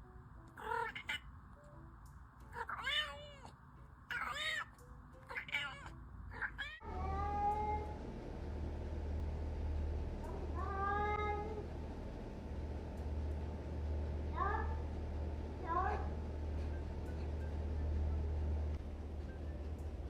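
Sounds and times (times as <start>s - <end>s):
cat meowing: 0.6s - 1.3s, 2.5s - 8.0s
low hum: 6.0s - 20.0s.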